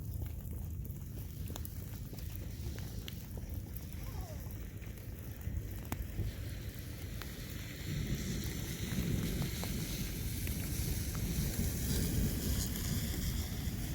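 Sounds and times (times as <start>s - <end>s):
thunder rumble: 2.2s - 13.9s
wind hissing: 5.4s - 13.9s.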